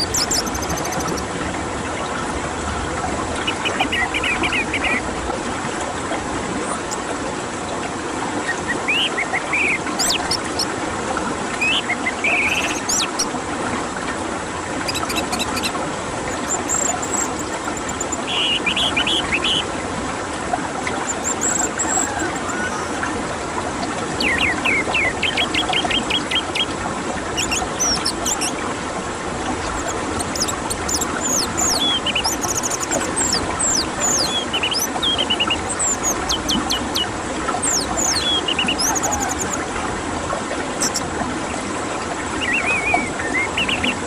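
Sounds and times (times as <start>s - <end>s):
songbird calls and trills: 0.0s - 1.3s, 3.4s - 5.0s, 8.4s - 10.7s, 11.6s - 13.3s, 14.9s - 19.7s, 21.0s - 23.0s, 24.2s - 26.7s, 27.4s - 28.6s, 29.6s - 39.7s, 40.8s - 41.0s, 42.4s - 44.0s.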